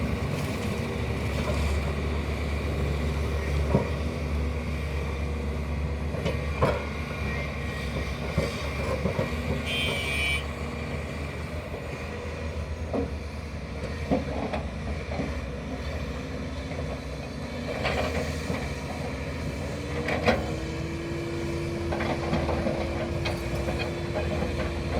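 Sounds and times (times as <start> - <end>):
heavy diesel machinery running: 0.0 - 24.9.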